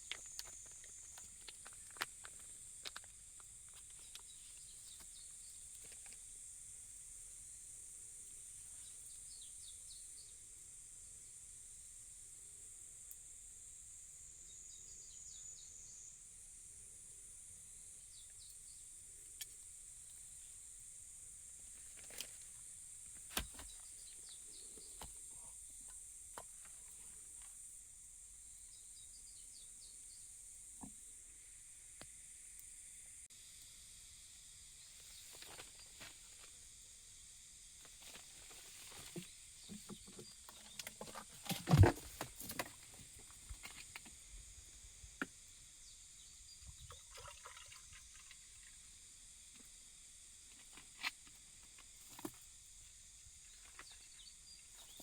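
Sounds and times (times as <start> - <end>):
clicks and knocks of handled gear: 0.0 - 5.1.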